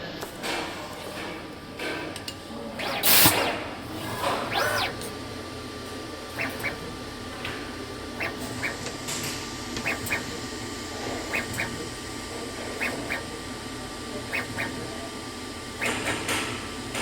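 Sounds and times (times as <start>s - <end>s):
robot motors whining: 2.6s - 17.0s.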